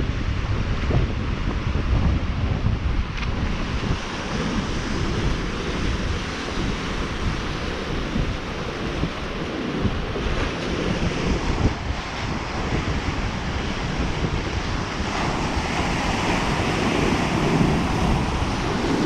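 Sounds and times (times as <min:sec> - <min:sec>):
surf rushing: 0:00.0 - 0:19.0
wind buffeting microphone: 0:00.0 - 0:19.0.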